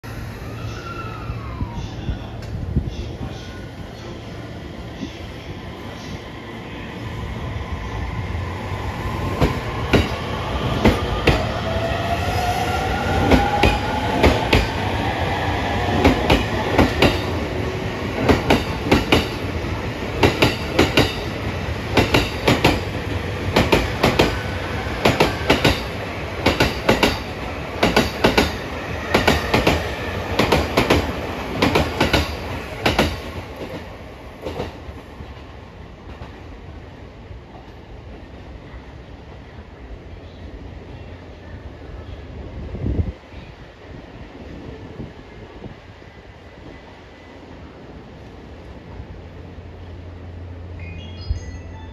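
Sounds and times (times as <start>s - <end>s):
train rumble: 0.0s - 51.9s
rail-joint clicks: 18.2s - 19.4s, 20.2s - 21.3s, 22.0s - 22.9s, 25.0s - 29.8s.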